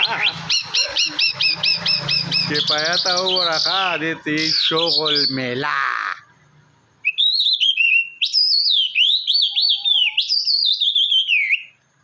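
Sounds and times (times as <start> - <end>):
songbird warbling: 0.0 - 6.4.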